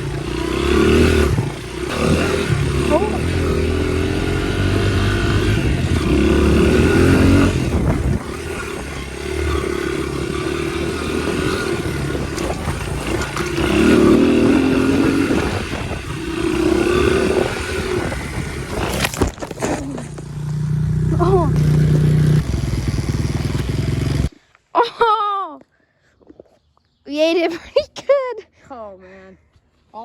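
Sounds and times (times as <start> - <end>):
dirt bike engine revving: 0.0 - 24.3.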